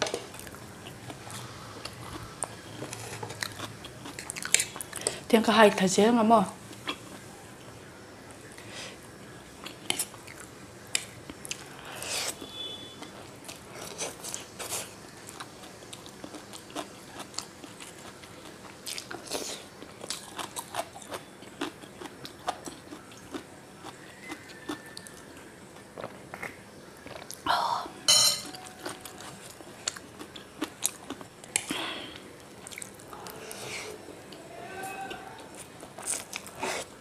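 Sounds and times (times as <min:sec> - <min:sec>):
chewing and biting food: 0:00.3 - 0:05.2, 0:13.1 - 0:27.4, 0:28.6 - 0:31.7, 0:32.6 - 0:33.1, 0:35.4 - 0:36.7.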